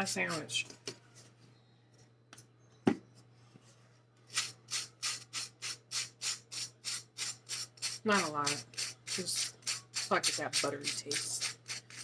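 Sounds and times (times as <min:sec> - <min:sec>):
knife scraping butter on toast: 0:04.3 - 0:12.0.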